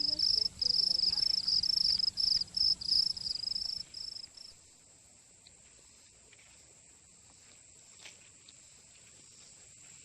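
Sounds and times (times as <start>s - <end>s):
high-pitched insect chorus: 0.0s - 4.9s.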